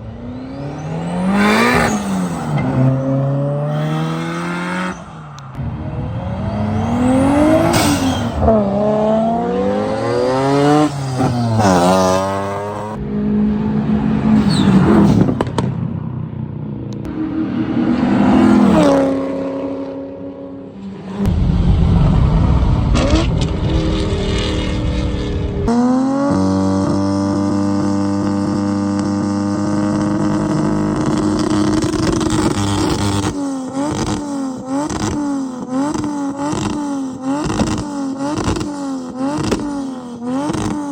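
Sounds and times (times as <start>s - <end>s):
car engines revving: 0.0s - 40.9s
rushing noise: 21.0s - 26.3s.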